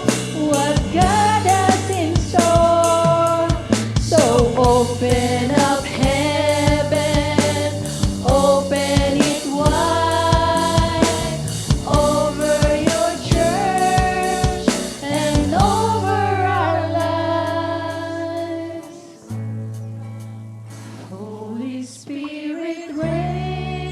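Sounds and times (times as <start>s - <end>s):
drum beat: 0.0s - 16.1s
person singing: 0.0s - 19.3s, 20.9s - 23.9s
live band playing slow song: 0.0s - 21.1s.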